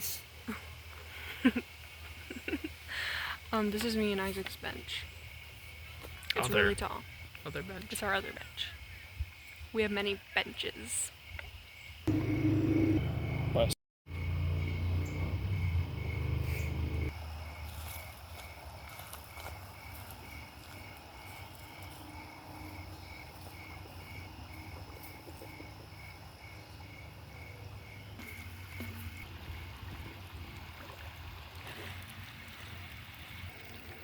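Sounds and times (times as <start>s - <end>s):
insects chirping: 0.0s - 33.9s
bus engine rumble: 12.1s - 17.1s.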